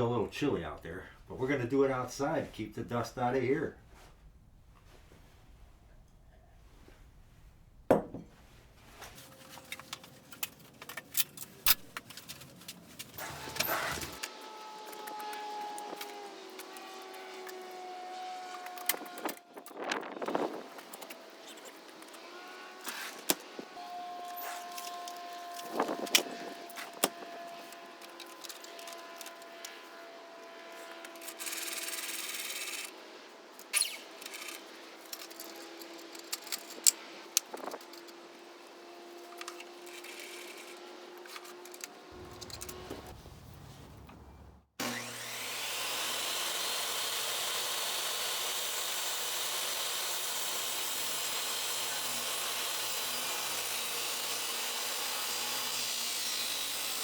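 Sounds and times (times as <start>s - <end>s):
table saw cutting wood: 13.2s - 33.0s, 37.6s - 44.1s, 44.8s - 57.0s.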